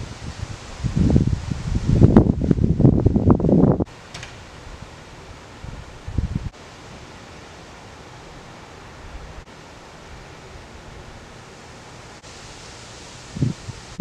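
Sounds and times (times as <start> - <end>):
wind buffeting microphone: 0.0 - 6.6, 13.3 - 14.0
wind hiss: 0.0 - 14.0.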